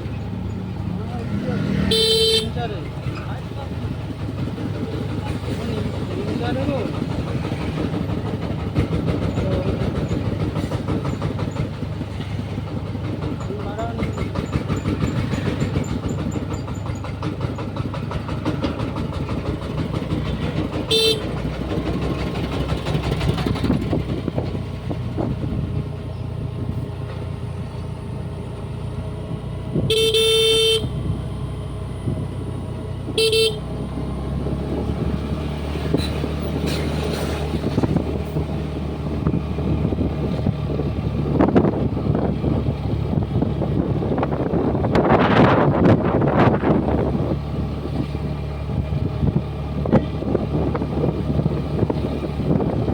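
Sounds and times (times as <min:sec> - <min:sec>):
scooter engine running: 0:00.0 - 0:26.4, 0:28.2 - 0:36.0
road and wind noise: 0:00.0 - 0:52.9
horn beeping: 0:01.6 - 0:02.8, 0:20.9 - 0:21.4, 0:29.8 - 0:31.1, 0:33.1 - 0:33.8.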